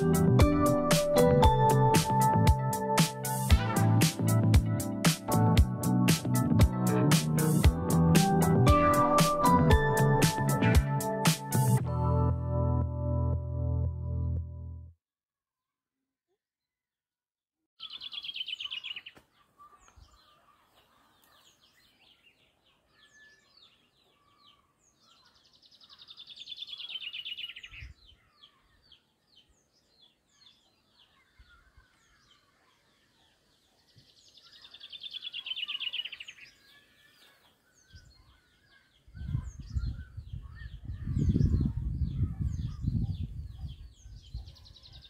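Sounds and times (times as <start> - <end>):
birds chirping: 17.8 - 45.0.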